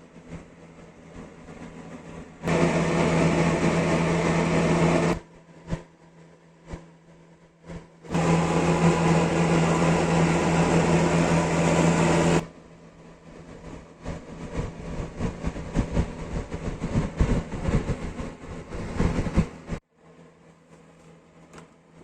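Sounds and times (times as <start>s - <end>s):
electric belt sander running: 2.5s - 5.2s, 8.1s - 12.4s.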